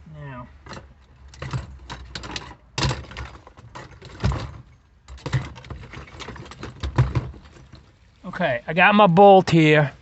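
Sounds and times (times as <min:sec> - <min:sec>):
small clicks and rattles: 0:00.6 - 0:07.9.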